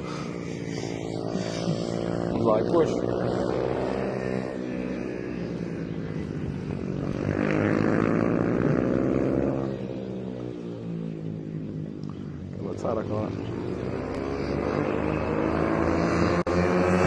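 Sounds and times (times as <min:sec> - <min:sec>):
racing motorcycles passing: 0:00.0 - 0:17.0.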